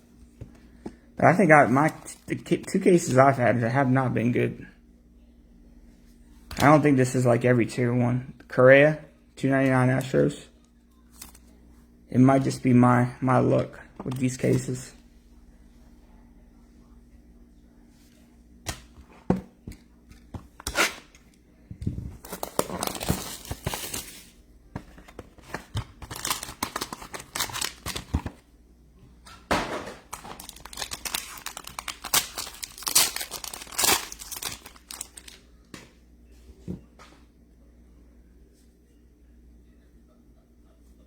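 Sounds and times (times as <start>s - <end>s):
packaging rustling and crackling: 22.2s - 24.3s, 25.0s - 28.4s, 30.0s - 35.4s.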